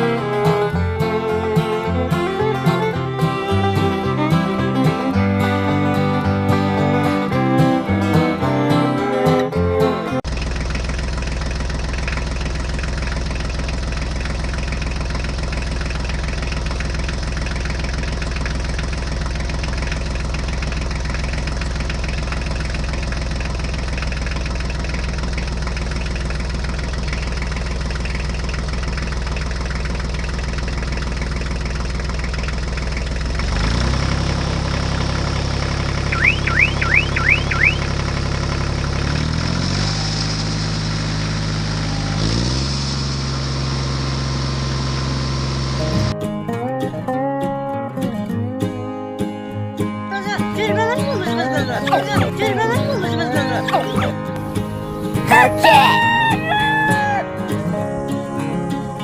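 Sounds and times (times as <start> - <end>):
engine running: 0.0 - 59.0
short high rising chirps: 36.1 - 37.9.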